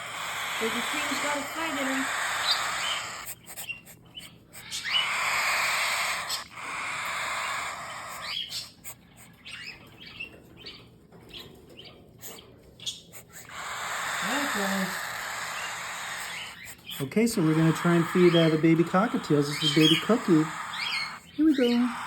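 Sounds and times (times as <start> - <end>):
cockatiels hissing: 0.0 - 10.1, 12.2 - 22.0
bird chirps and squeaks: 0.0 - 22.0.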